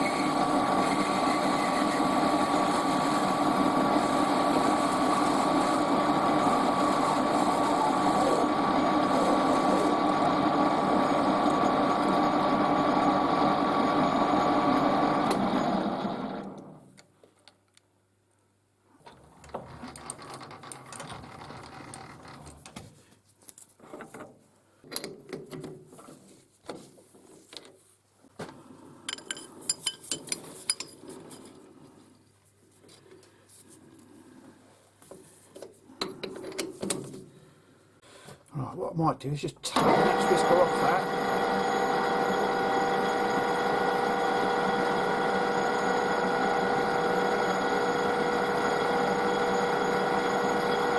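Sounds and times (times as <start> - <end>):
metal lathe whining: 0.0 - 16.8, 39.7 - 50.9
metal tools clinking: 29.1 - 31.0.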